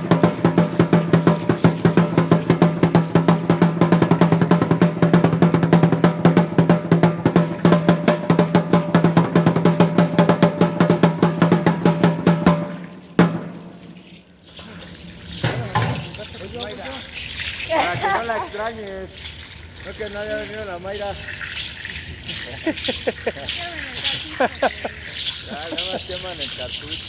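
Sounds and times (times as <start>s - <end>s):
fast drumming: 0.0s - 14.2s.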